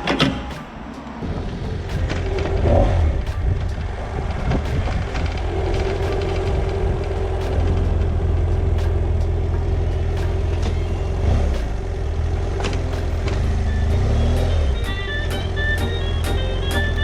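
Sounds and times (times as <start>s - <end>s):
wind rumble on microphone: 1.1s - 14.7s.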